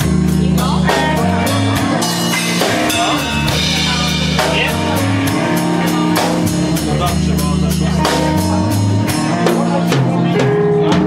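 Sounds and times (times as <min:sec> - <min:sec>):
blues-rock band playing: 0:00.0 - 0:11.0
drum kit beat: 0:00.0 - 0:11.0.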